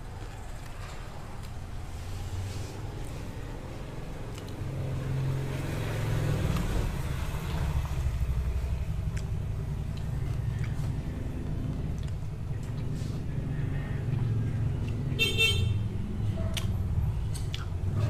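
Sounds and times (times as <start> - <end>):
chewing clicks: 4.2 - 4.6, 9.1 - 13.0, 16.5 - 17.8.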